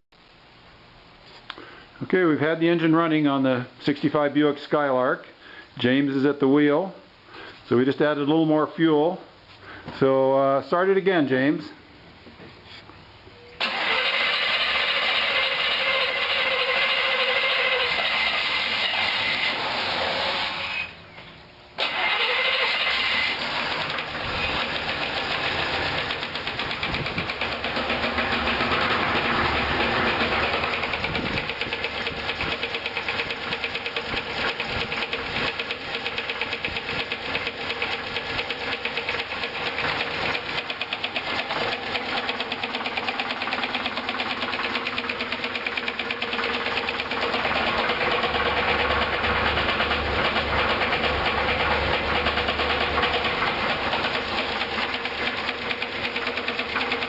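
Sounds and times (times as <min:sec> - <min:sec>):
car engine knocking: 0:23.8 - 0:57.0.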